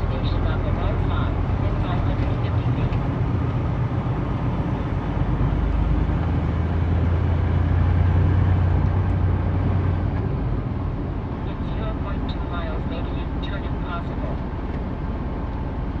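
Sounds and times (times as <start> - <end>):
diesel truck engine droning: 0.0 - 16.0.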